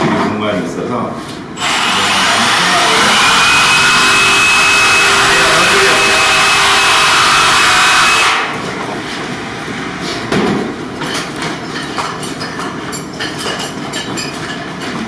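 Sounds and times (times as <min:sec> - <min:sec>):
machine whir with high whine: 0:01.6 - 0:10.1
knocks and clatter of handling: 0:10.3 - 0:15.0.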